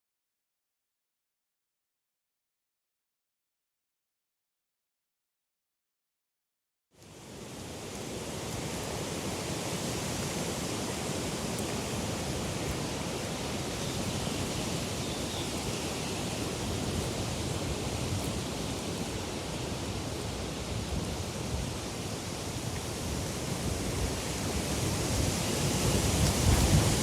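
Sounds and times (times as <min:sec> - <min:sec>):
wind rushing: 0:24.9 - 0:27.0.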